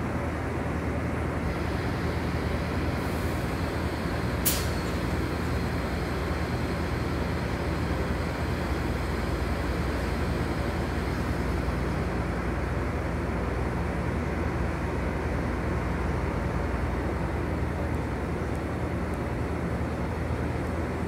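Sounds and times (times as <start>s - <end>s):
train engine humming: 0.0s - 21.0s
sharp hiss of air: 3.0s - 5.8s.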